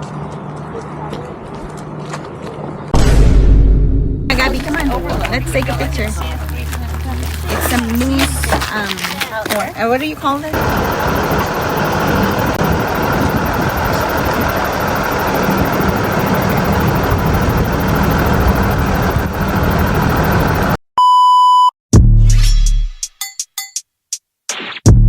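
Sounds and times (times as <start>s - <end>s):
rushing noise with low rumble: 10.6s - 20.8s.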